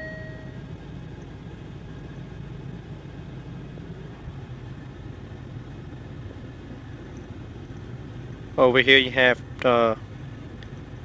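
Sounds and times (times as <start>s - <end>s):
short electronic dashboard beep: 0.0s - 0.6s
car engine idling: 0.0s - 11.0s.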